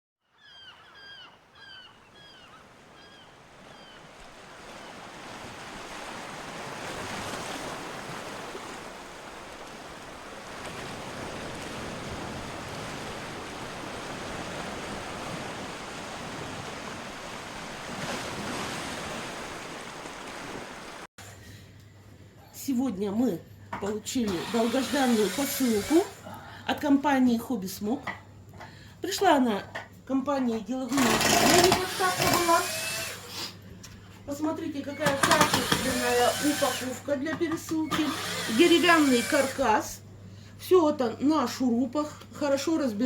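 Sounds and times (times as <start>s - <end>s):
sea waves washing onto shore: 3.4s - 21.1s.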